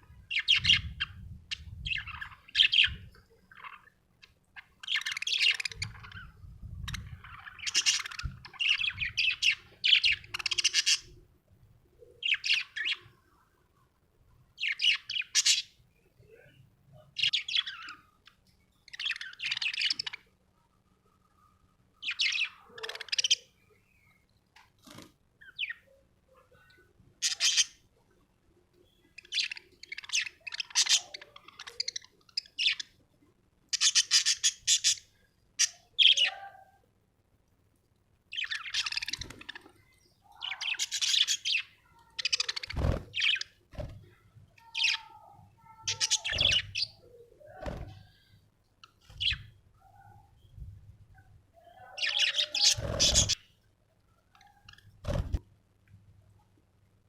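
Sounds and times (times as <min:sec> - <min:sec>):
budgerigar chirping: 0:33.8 - 0:36.4.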